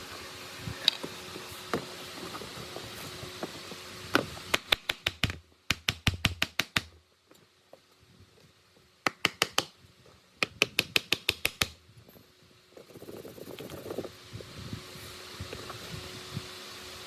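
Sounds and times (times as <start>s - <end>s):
quick sharp taps: 4.5s - 7.0s, 9.1s - 9.8s, 10.4s - 11.8s.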